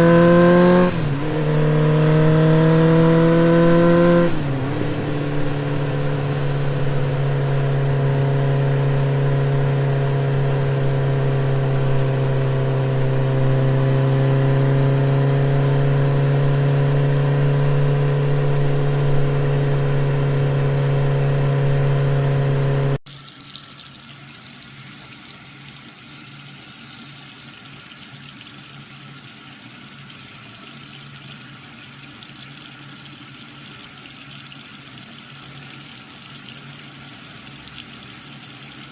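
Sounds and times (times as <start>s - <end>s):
running water: 23.1s - 38.9s.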